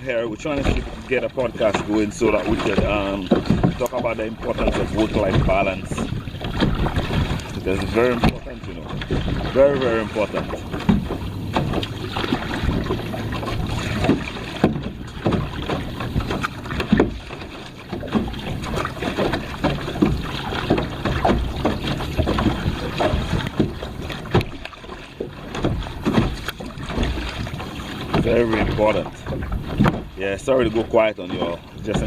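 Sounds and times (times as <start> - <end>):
water splashing against kayak: 0.0 - 32.0
wind buffeting microphone: 0.0 - 32.0.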